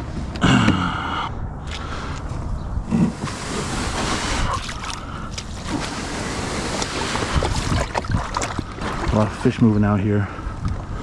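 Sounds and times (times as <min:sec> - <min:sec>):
wind rushing over microphone: 0:00.0 - 0:11.0
water splashing around kayak: 0:03.0 - 0:11.0.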